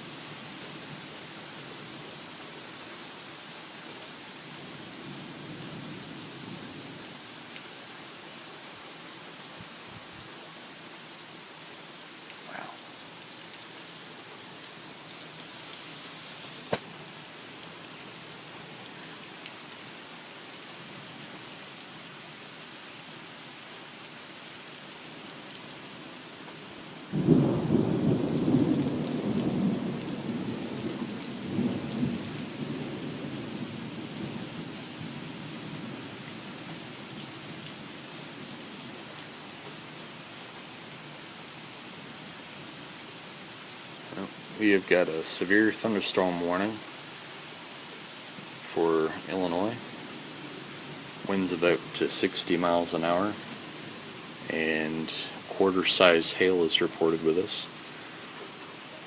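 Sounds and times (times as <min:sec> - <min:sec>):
steady rain falling: 0:00.0 - 0:59.0
rumble of thunder: 0:27.1 - 0:34.6.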